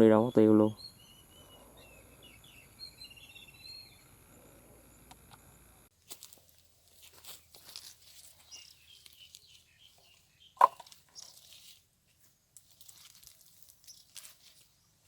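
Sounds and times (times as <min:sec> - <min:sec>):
dry leaves crackling underfoot: 0:05.9 - 0:15.0.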